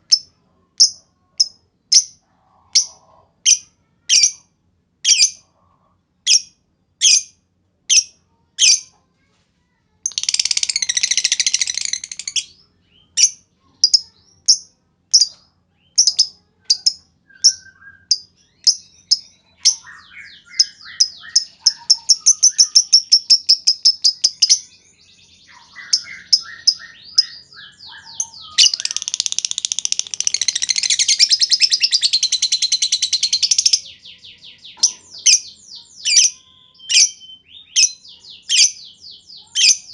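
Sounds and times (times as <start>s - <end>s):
lovebird chattering trills: 0.1s - 4.4s, 10.1s - 15.3s, 15.9s - 24.7s, 25.5s - 37.2s
lovebird chirps: 10.1s - 39.9s.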